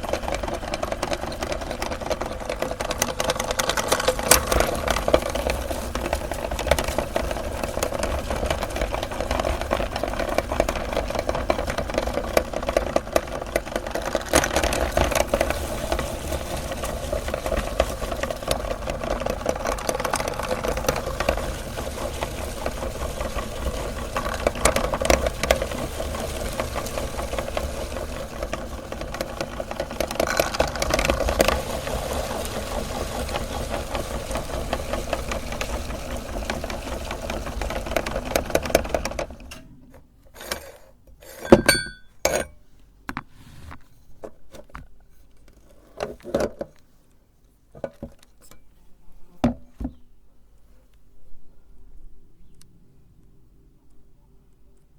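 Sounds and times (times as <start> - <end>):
electric meat grinder running: 0.0 - 39.4
scattered clicks and knocks: 0.0 - 43.3.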